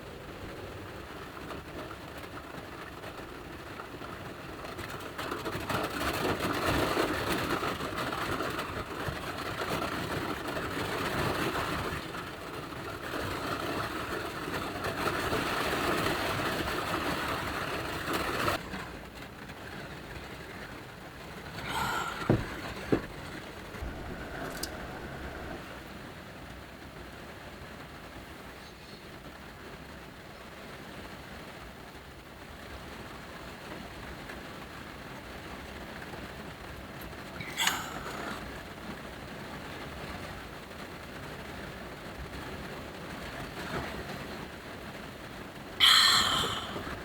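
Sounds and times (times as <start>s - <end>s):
heavy rain drumming on roof: 0.0s - 47.0s
sharp knocks: 21.7s - 23.2s.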